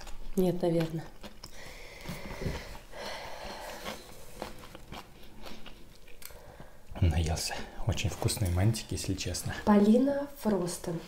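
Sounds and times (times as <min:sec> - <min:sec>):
person chewing with wet clicks: 0:00.0 - 0:02.2, 0:03.4 - 0:06.8.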